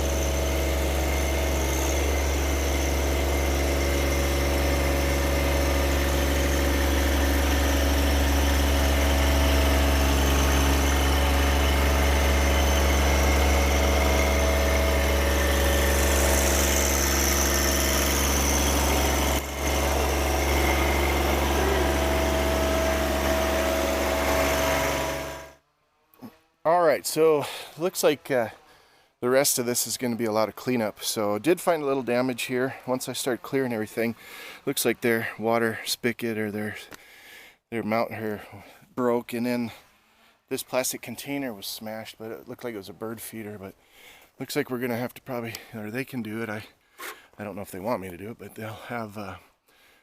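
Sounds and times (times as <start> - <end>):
engine idling: 0.0 - 25.6.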